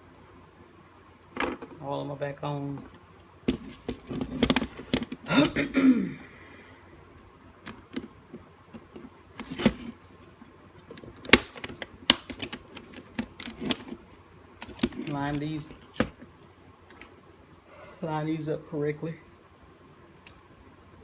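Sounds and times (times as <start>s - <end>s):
plastic parts clicking and tapping: 2.8s - 5.2s, 10.9s - 14.0s, 14.6s - 16.3s.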